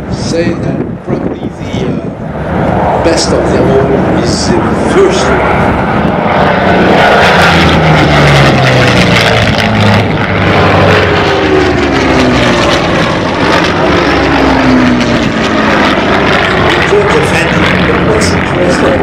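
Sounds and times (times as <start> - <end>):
propeller plane flying past: 0.0 - 19.0.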